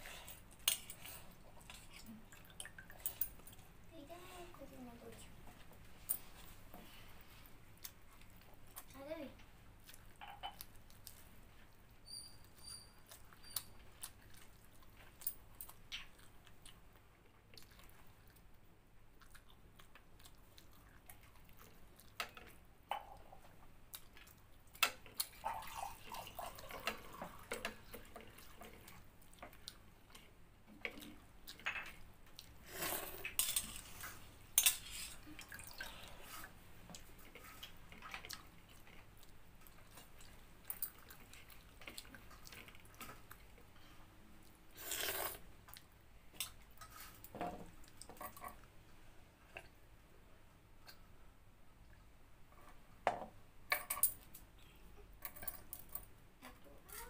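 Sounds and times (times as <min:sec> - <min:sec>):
person chewing with wet smacks: 0:07.4 - 0:09.0, 0:09.8 - 0:12.0, 0:13.0 - 0:22.6, 0:23.2 - 0:31.6, 0:37.0 - 0:43.8.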